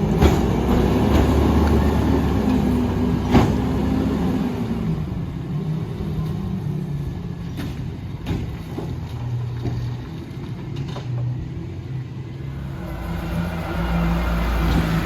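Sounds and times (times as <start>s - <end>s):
garbage truck diesel engine running: 12.4s - 15.0s.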